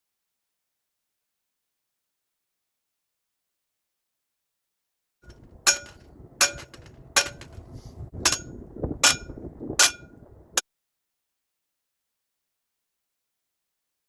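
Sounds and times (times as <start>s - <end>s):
low rumbling noise: 5.3s - 10.6s
sharp strikes on metal: 5.7s - 7.6s, 8.2s - 10.2s.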